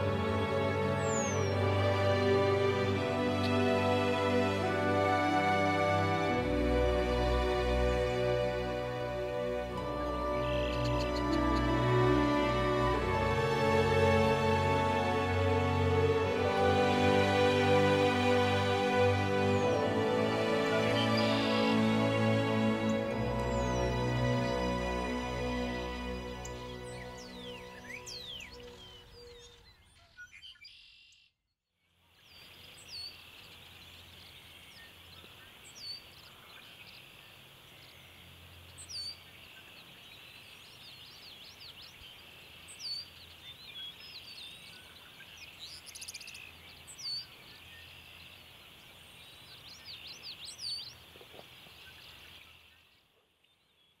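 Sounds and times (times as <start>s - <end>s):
birds whistling sweeping calls: 0.0s - 15.8s, 16.6s - 31.2s, 37.9s - 52.9s
high-pitched chorus: 0.0s - 29.0s
soft music: 0.0s - 29.3s.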